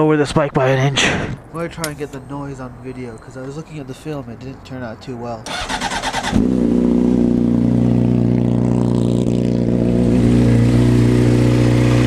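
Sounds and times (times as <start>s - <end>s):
engine ticking: 1.5s - 6.8s
motorcycle engine starting and idling: 5.4s - 12.0s.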